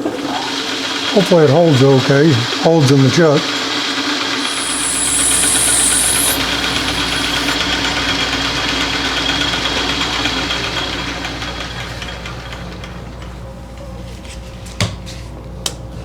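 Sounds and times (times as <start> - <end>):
high cutting hiss: 4.4 - 7.6
metal lathe humming: 4.4 - 7.6.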